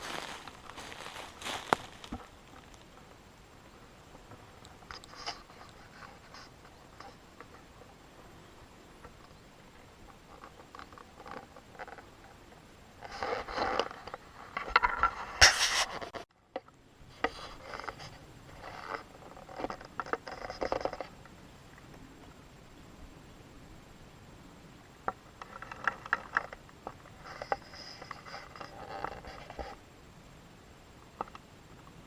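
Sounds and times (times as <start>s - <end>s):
scraping and rustling: 0.0s - 3.1s, 10.0s - 16.3s, 25.4s - 29.8s.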